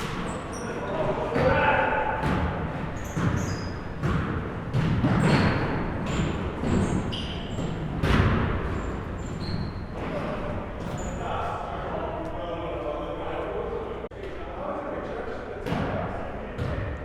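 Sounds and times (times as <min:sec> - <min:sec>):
sneaker squeaks: 0:00.0 - 0:11.6
basketballs bouncing on gym floor: 0:01.0 - 0:11.2.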